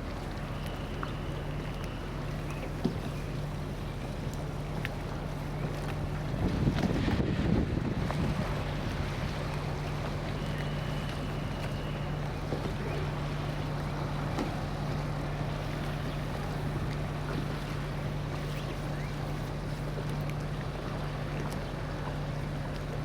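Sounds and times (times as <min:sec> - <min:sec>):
ferry engine droning: 0:00.0 - 0:23.0
water noise: 0:00.0 - 0:23.0
wind noise: 0:06.3 - 0:09.2.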